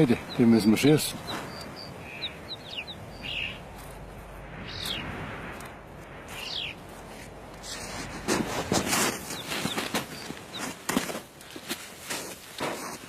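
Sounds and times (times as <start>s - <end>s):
small birds chirping: 0.0s - 5.2s, 6.1s - 6.9s, 8.8s - 11.7s.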